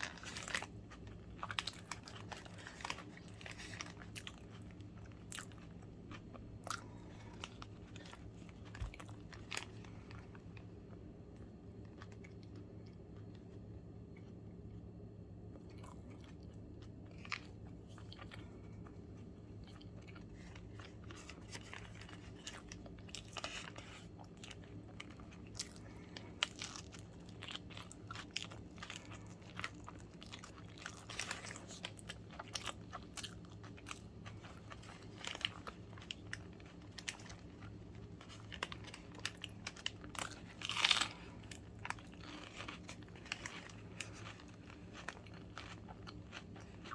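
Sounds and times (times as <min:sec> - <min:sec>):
crunchy bites and chewing: 0:00.0 - 0:46.9.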